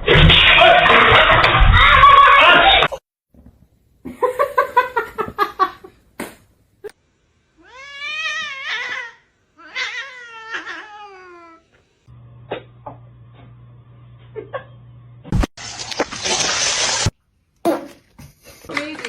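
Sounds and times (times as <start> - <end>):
cat meowing: 7.6 - 11.6.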